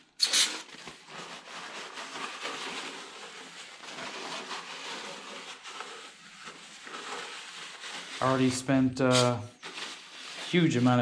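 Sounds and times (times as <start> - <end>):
paper towel wiping metal: 0.2 - 11.0
aerosol spray hiss: 9.1 - 9.4.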